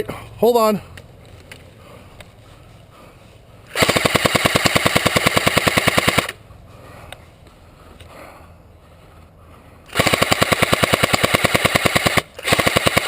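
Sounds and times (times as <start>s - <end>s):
airsoft rifle full-auto burst: 3.7s - 6.4s, 9.9s - 13.0s.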